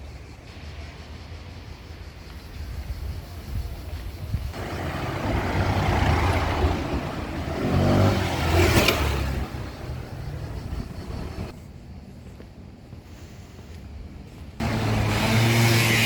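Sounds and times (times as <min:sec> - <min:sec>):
vehicle driving past: 0:04.6 - 0:11.5.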